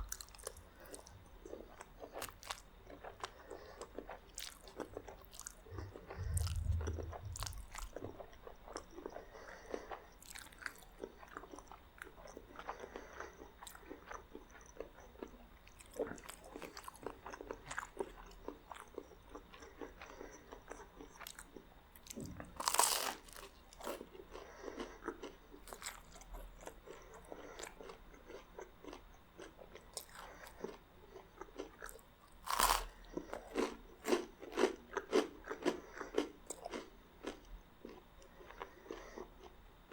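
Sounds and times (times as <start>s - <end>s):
chewing and biting food: 0.0s - 39.6s
loud crunches: 22.2s - 23.5s.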